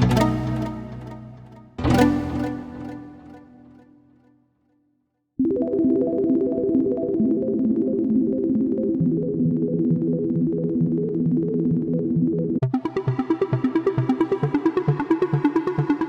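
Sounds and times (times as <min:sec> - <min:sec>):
lower synth note line: 0:00.0 - 0:03.8
synth arpeggio: 0:00.0 - 0:03.8, 0:05.4 - 0:16.0.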